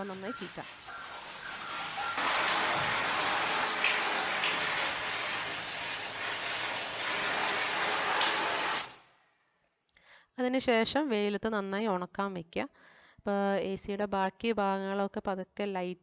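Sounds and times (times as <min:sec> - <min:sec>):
water jet spraying on mesh filter: 0:00.1 - 0:09.0.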